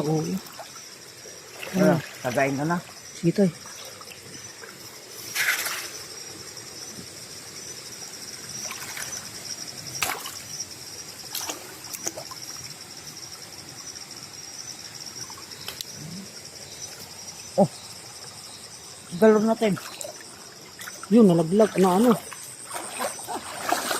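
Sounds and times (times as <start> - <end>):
insects trilling: 0.0 - 23.9
short sharp knocks or splashes: 10.0 - 10.4.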